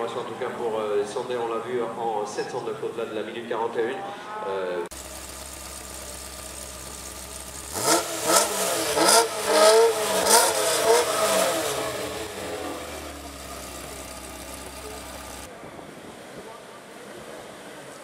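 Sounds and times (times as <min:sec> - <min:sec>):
car engine accelerating with upshifts: 0:04.9 - 0:15.5
engine cracks: 0:04.9 - 0:15.5.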